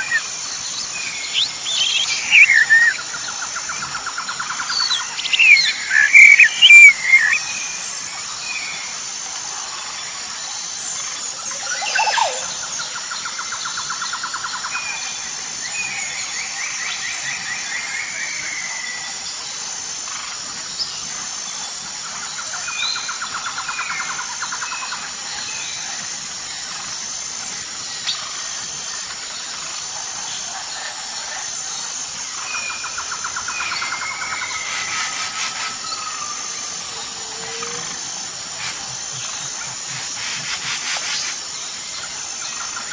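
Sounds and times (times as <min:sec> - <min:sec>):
bird buzzy rattling trills: 0:00.0 - 0:08.4, 0:31.4 - 0:42.9
high-pitched drone: 0:32.1 - 0:42.9
bird chirps and whistles: 0:33.5 - 0:36.0.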